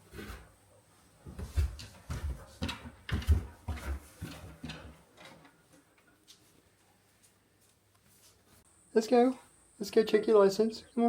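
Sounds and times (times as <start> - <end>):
footsteps and knocks: 0.0 - 8.6.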